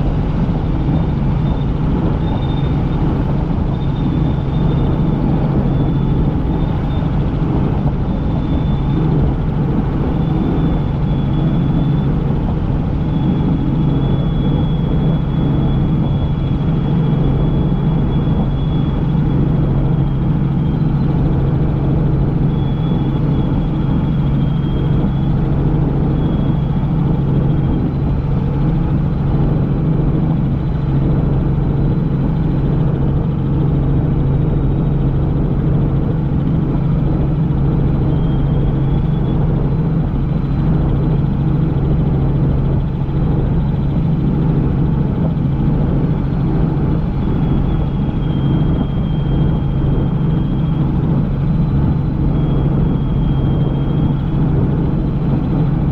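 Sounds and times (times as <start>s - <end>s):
faint high whine: 0.0s - 55.9s
helicopter rotor and engine drone: 0.0s - 55.9s.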